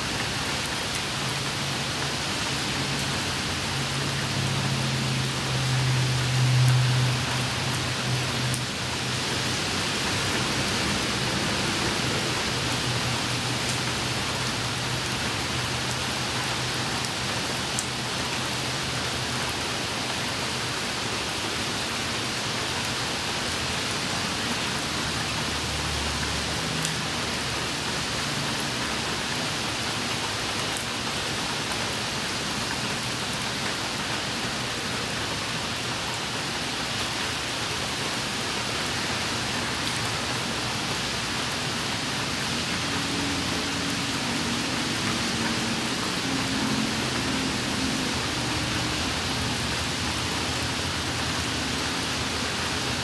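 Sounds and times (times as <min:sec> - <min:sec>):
rain on wet pavement: 0:00.0 - 0:53.0
sharp raindrop ticks: 0:05.7 - 0:09.1, 0:12.2 - 0:20.2, 0:26.2 - 0:27.6.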